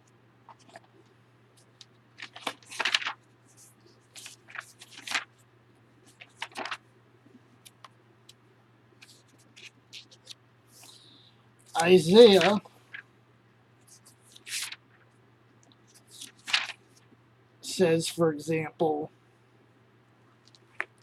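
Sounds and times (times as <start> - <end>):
low electrical hum: 0.0 - 21.0
paper rustling and crinkling: 0.5 - 1.0, 1.6 - 5.4, 6.0 - 6.8, 9.0 - 11.0, 11.7 - 13.1, 13.9 - 15.0, 15.9 - 17.1.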